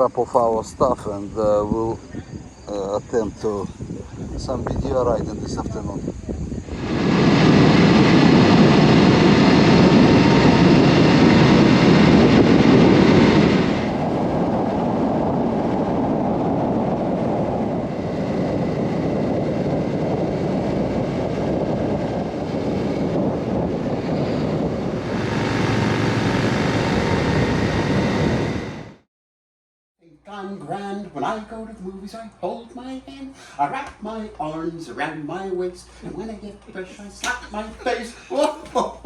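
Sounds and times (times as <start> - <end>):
road and wind noise: 0.0 - 29.1
motorcycle engine: 20.1 - 29.0.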